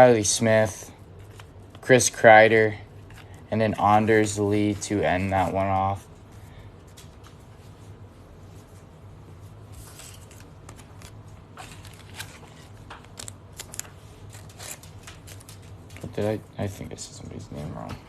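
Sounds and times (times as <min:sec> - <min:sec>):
steady low hum: 0:00.0 - 0:18.0
trading cards rustling: 0:01.1 - 0:08.1, 0:09.5 - 0:16.4.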